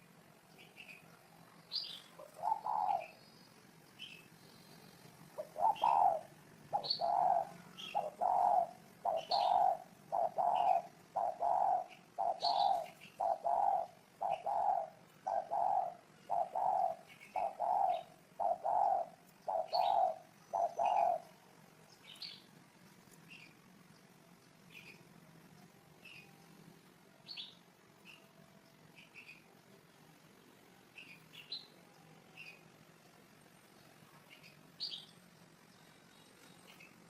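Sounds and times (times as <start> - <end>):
small birds chirping: 0.0 - 37.0
dove cooing: 1.9 - 3.2, 5.3 - 21.5.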